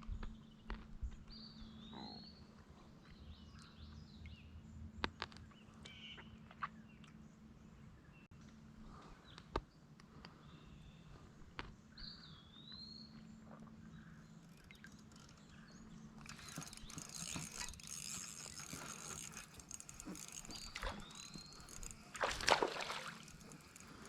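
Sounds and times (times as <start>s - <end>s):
knocks and splashing: 22.1s - 23.5s.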